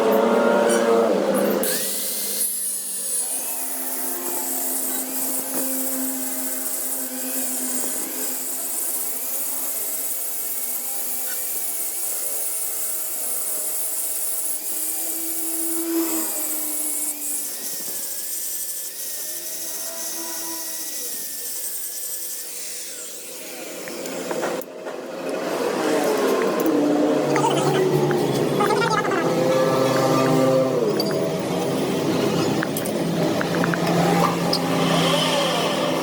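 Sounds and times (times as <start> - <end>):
power tool motor whining: 25.8 - 36.0.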